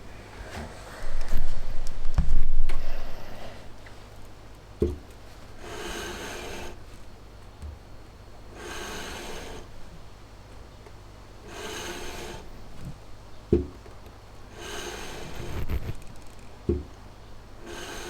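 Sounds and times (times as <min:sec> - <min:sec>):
metal rasping on sandpaper: 0:05.6 - 0:06.8, 0:08.6 - 0:09.7, 0:11.5 - 0:12.5, 0:14.5 - 0:16.1, 0:17.6 - 0:18.0.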